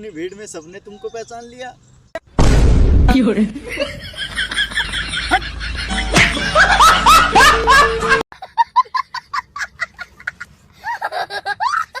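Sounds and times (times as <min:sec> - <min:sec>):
comic honking laughter: 0:03.8 - 0:12.0.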